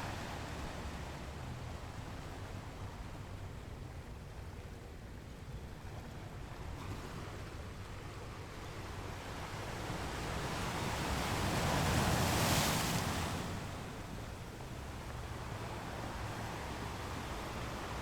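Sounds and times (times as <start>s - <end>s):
sea surf rumble: 9.9s - 18.0s.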